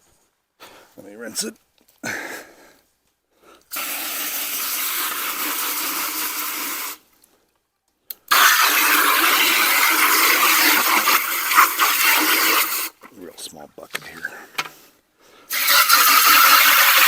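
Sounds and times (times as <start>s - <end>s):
water running into plastic bucket: 3.7s - 7.0s, 8.3s - 13.2s, 15.5s - 17.0s.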